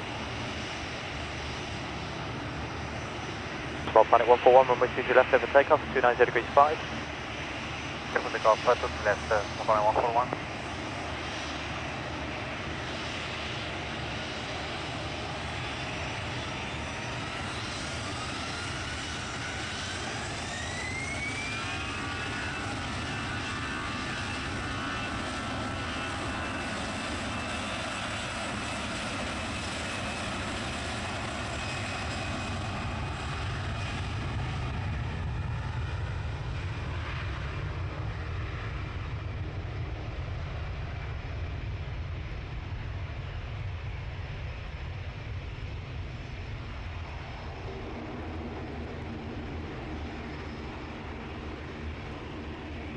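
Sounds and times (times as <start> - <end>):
jet engines spooling up: 0.0 - 41.2.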